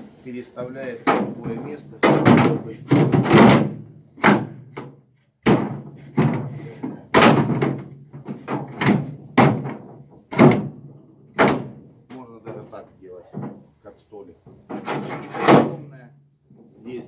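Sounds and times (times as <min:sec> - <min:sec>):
seat clanking on aluminium boat: 0:01.1 - 0:10.8.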